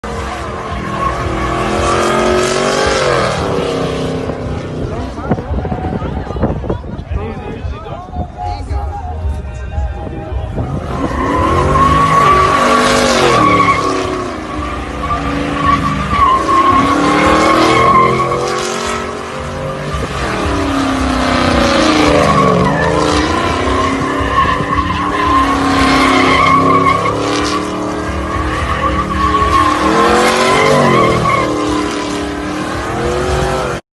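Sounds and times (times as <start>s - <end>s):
truck engine revving: 0.0s - 6.5s, 10.5s - 33.8s
tires squealing: 0.0s - 33.8s.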